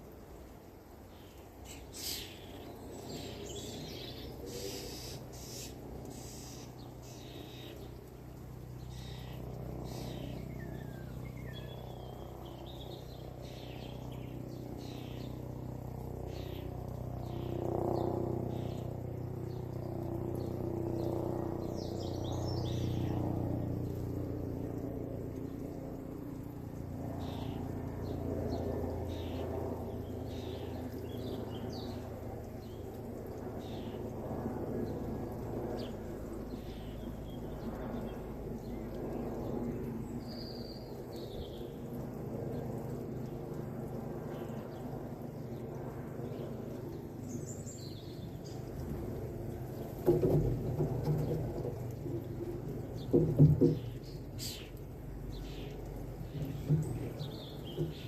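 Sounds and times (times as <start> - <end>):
birds chirping and calling: 1.7 - 7.8, 8.9 - 12.2, 29.1 - 29.4, 53.0 - 58.0.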